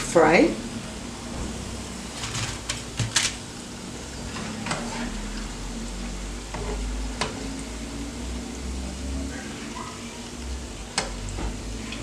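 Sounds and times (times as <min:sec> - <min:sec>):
food sizzling in hot oil: 0:00.0 - 0:12.0
kitchen utensils clinking: 0:02.1 - 0:03.4.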